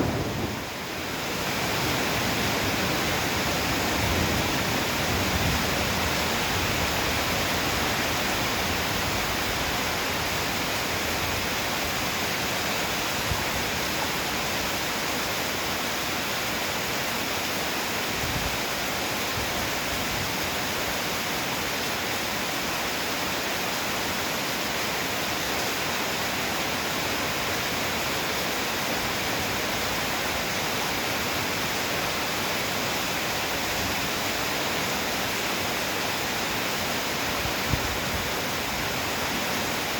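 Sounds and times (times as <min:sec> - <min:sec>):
heavy pouring rain: 0:00.0 - 0:39.9.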